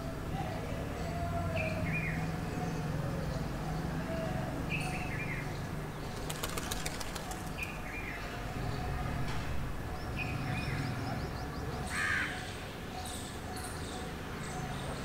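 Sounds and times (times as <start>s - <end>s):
bird wingbeats flutter: 6.1s - 7.8s.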